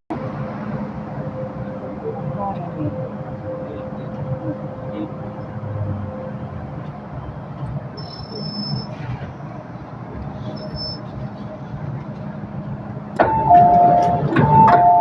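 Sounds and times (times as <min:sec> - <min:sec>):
train rumbling: 0:00.1 - 0:15.0
high wheel squeals: 0:08.0 - 0:09.2, 0:10.4 - 0:11.1.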